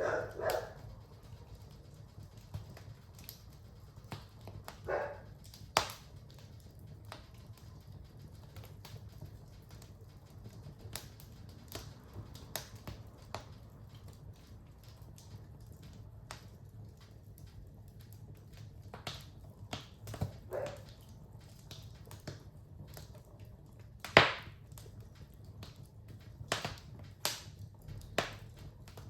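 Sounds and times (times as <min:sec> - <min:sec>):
fire crackling in a fireplace: 0:00.0 - 0:29.0.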